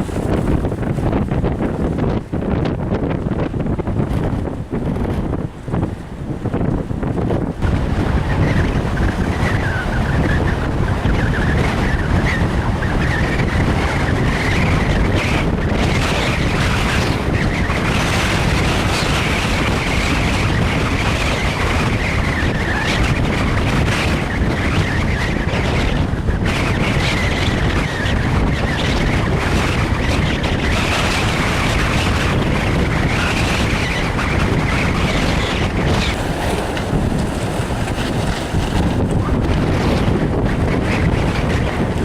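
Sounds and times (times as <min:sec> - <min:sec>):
high wavering wind whistle: 0:00.0 - 0:42.0
wind buffeting microphone: 0:00.0 - 0:42.0.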